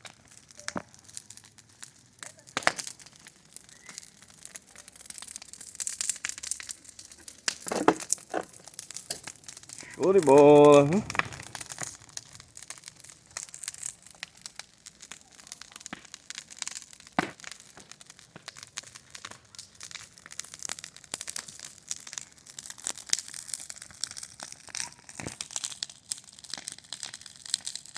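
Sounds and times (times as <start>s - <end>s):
bonfire crackling: 0.0s - 27.9s
sharp pops of fire: 0.0s - 27.9s.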